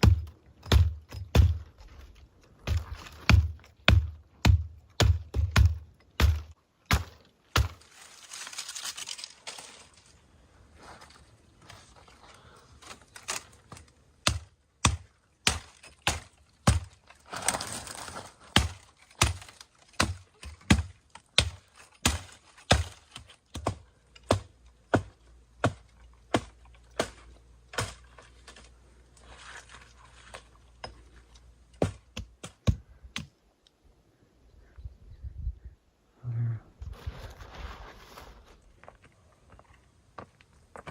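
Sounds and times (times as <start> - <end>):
wood chopping knocks: 0.0 - 1.6, 2.6 - 7.8
rustling: 7.7 - 14.0, 17.0 - 19.9, 36.9 - 39.8.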